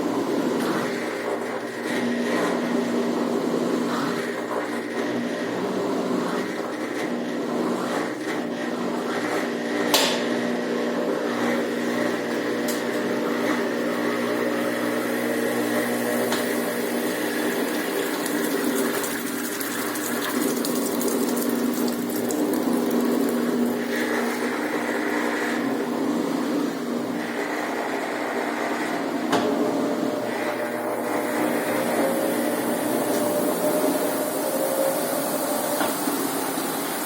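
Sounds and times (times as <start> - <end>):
washing machine motor hum: 0.0 - 37.0
water rushing: 17.1 - 23.9.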